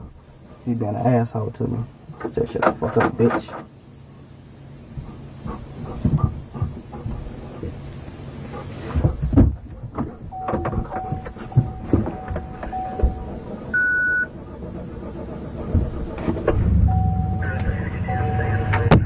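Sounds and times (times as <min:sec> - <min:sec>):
car engine running: 0:00.0 - 0:19.0
car warning chime pulses: 0:10.3 - 0:14.3, 0:16.8 - 0:19.0
high beep: 0:10.4 - 0:14.3, 0:16.9 - 0:18.8.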